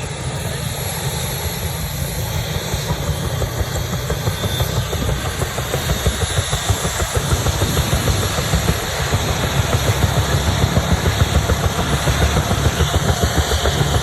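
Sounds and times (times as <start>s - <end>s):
helicopter rotor beating: 0.0s - 14.0s
turbine whine: 0.0s - 14.0s.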